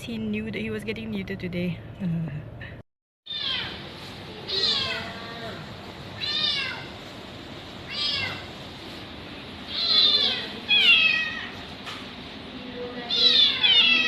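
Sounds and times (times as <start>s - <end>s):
kitten meowing: 4.5s - 5.5s, 13.1s - 14.0s.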